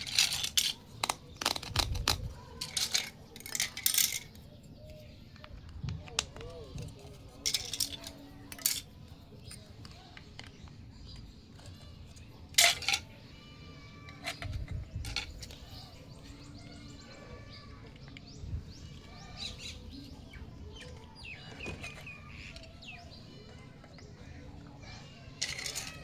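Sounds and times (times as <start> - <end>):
plastic toy pieces clicking: 0.0 - 13.1, 14.0 - 15.7, 25.2 - 26.0
birds chirping: 0.0 - 26.0.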